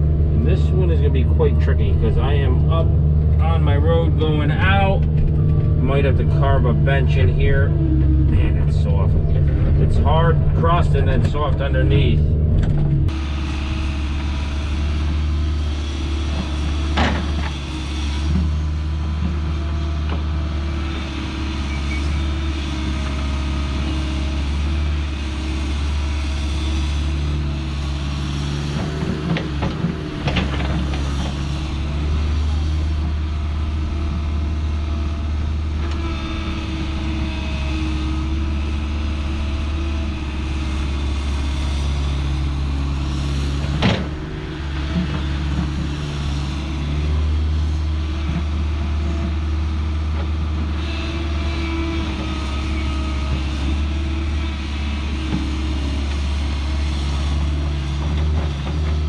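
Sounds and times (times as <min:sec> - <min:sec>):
excavator diesel engine running: 0:00.0 - 0:59.0
excavator bucket clanking: 0:28.8 - 0:31.6, 0:43.6 - 0:46.0.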